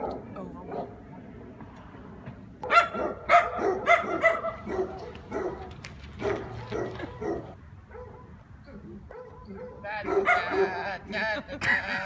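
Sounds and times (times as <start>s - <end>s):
dog barking and yipping: 2.6s - 10.9s.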